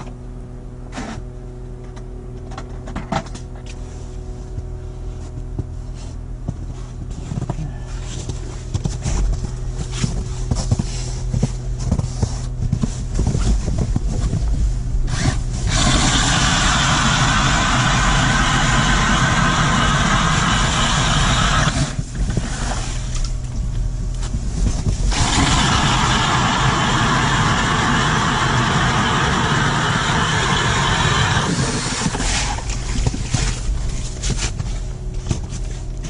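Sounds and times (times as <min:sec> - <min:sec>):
motor humming: 0:14.9 - 0:36.0
loud hissing rush: 0:15.6 - 0:23.1, 0:25.1 - 0:32.7.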